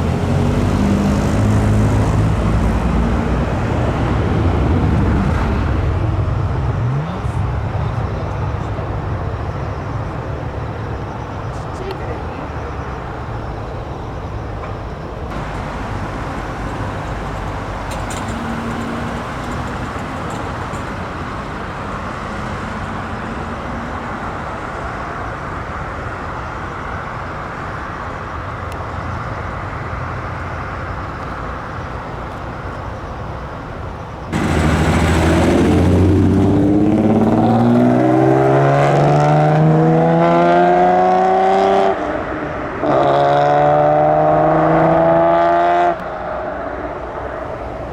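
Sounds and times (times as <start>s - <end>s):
car engine accelerating hard: 0.0s - 9.0s, 15.3s - 26.2s, 34.3s - 46.9s
engine and road noise: 0.0s - 47.9s.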